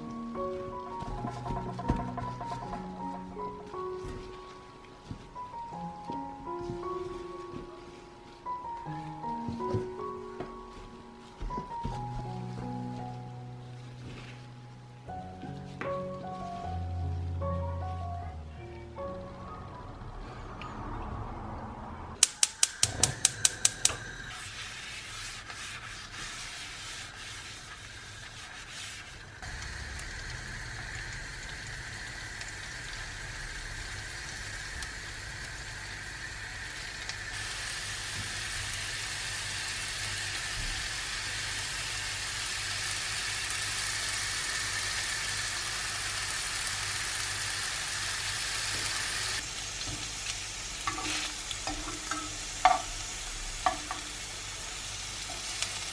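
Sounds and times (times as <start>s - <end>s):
metal tongs clicking on pan: 22.2s - 23.9s
potato slices sizzling in oil: 24.5s - 55.9s.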